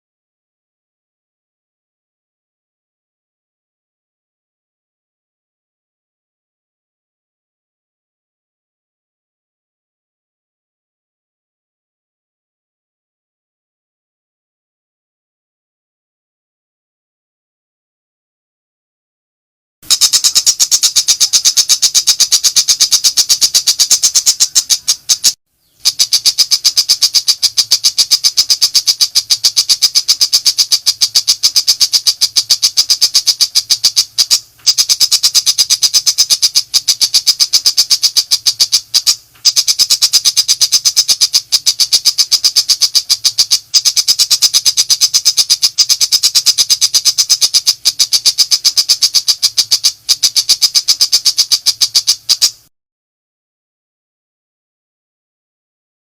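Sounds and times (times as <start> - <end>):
shrike rapid high calls: 19.9 - 52.6.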